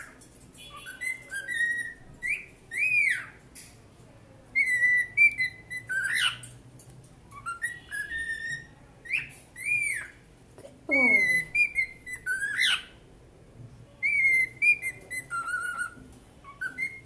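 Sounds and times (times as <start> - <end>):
cockatiel whistling: 0.7 - 3.4, 4.6 - 6.4, 7.3 - 10.1, 11.0 - 12.9, 14.0 - 17.0.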